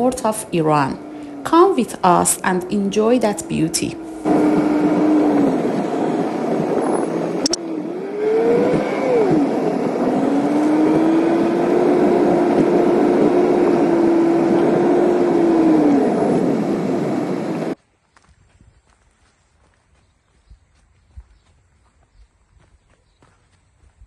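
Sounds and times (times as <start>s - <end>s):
road noise: 0.0s - 17.8s
vehicle engine running: 0.0s - 17.8s.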